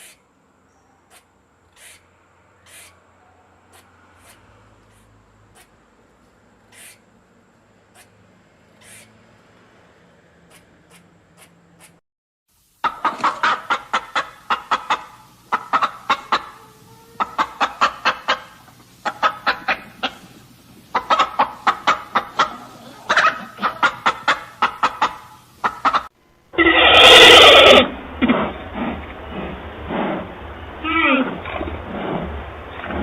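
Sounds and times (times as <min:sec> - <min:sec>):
chickens clucking: 0:12.8 - 0:26.8.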